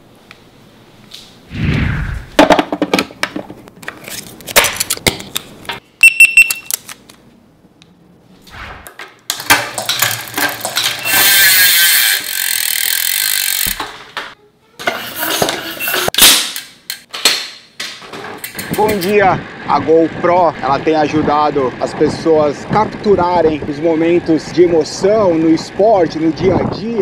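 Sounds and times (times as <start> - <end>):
short electronic beep: 6.0 - 6.7
bike wheel spinning buzz: 9.8 - 14.3, 14.9 - 16.2, 18.6 - 27.0.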